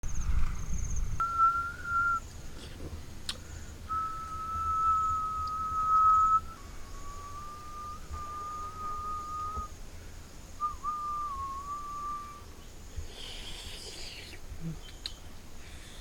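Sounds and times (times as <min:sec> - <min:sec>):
person whistling long notes: 0:01.2 - 0:02.2, 0:03.9 - 0:09.7, 0:10.6 - 0:12.4.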